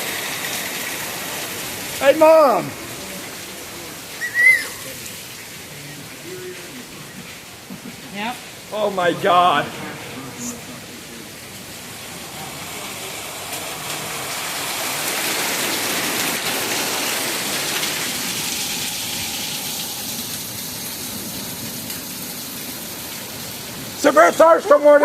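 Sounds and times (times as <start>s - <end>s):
heavy rain pouring: 0.0s - 25.0s.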